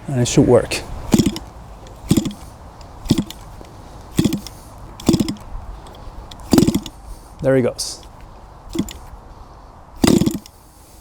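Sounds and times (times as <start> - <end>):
small engine cranking over: 1.0 - 7.0, 8.7 - 9.1, 10.0 - 10.6.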